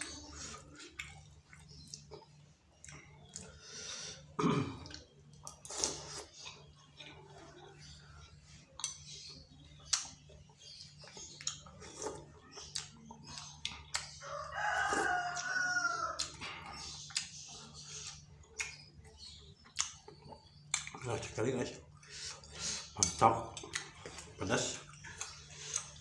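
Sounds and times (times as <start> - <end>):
chewing: 0.0 - 26.0
rooster crowing: 14.2 - 16.3.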